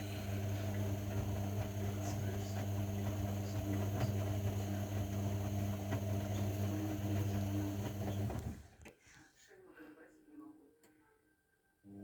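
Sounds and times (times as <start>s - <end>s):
washing machine humming: 0.0s - 8.8s.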